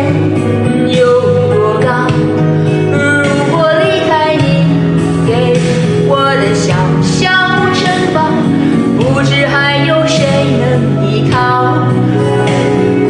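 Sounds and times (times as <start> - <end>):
instrumental backing music: 0.0 - 13.0
woman singing: 0.0 - 13.0.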